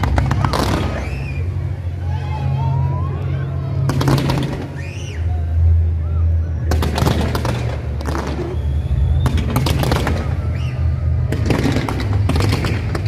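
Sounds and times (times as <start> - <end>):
loud low bass: 0.0 - 13.0
fireworks bursting and crackling: 3.9 - 4.8, 6.7 - 13.0.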